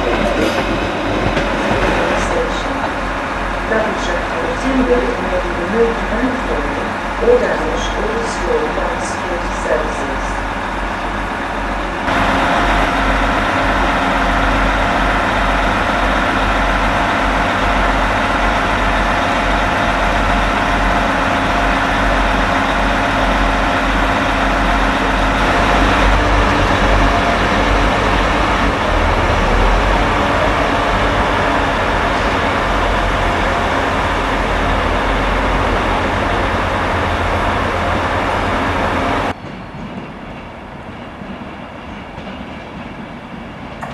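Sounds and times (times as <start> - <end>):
diesel engine running: 12.1 - 39.4.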